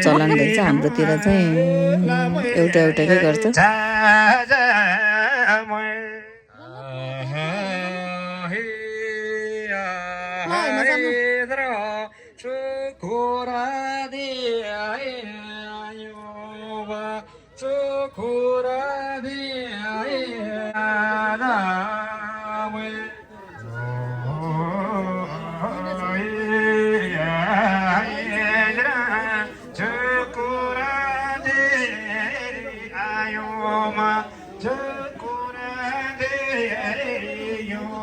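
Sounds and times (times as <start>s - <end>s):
man chanting over loudspeaker: 0.0s - 6.2s, 18.7s - 38.0s.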